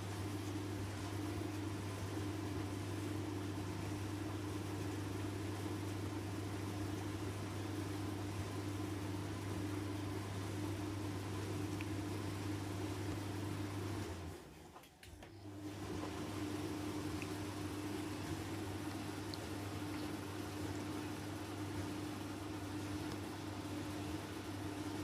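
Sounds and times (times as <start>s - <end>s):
tumble dryer running: 0.0s - 25.0s.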